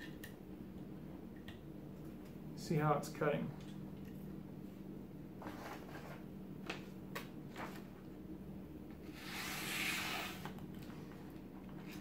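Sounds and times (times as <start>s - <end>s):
steady low hum: 0.0s - 12.0s
knife rubbing and sliding: 9.1s - 10.6s.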